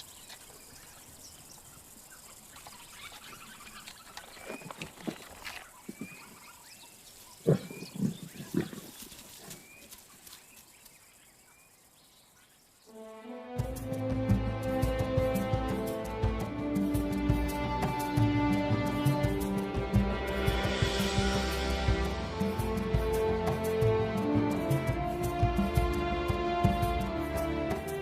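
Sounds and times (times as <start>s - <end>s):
small birds chirping: 0.0s - 13.0s
lions grunting and growling: 7.4s - 9.4s
music: 12.9s - 28.0s.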